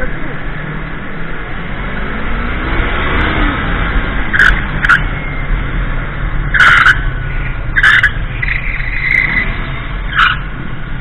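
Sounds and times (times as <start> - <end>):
vehicle engine rumbling: 0.0 - 11.0
high-pitched squeals: 6.5 - 10.5.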